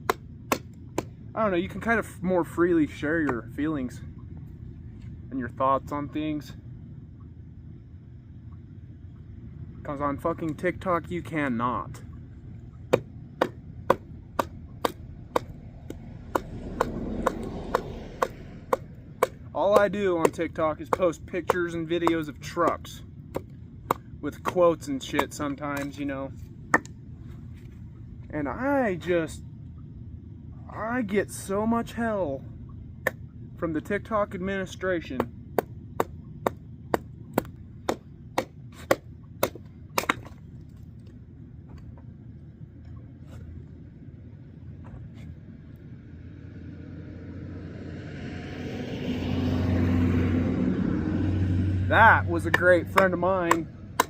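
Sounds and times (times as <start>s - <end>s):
hatchet chopping kindling: 0.0s - 1.2s, 12.9s - 26.9s, 35.2s - 40.4s, 52.4s - 54.0s.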